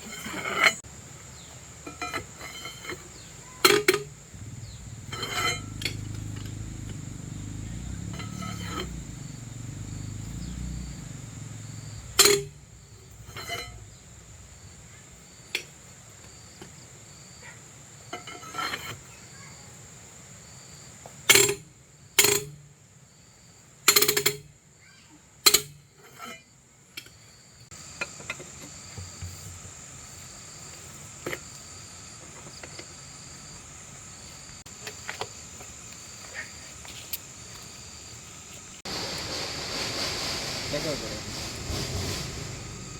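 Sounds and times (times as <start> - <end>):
insects chirping: 0.0 - 42.9
metal clanks and knocks: 1.9 - 14.7
low rumble: 4.0 - 15.2, 38.9 - 42.9.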